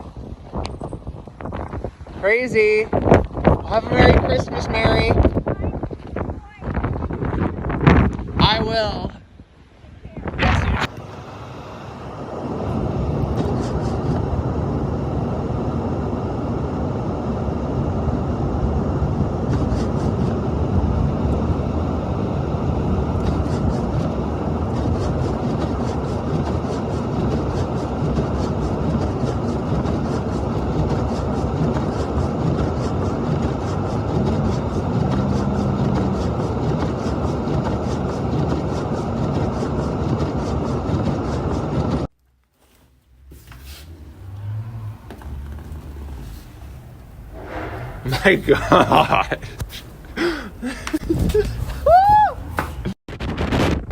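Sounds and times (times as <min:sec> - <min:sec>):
wind buffeting microphone: 0:00.0 - 0:42.1, 0:43.6 - 0:53.9.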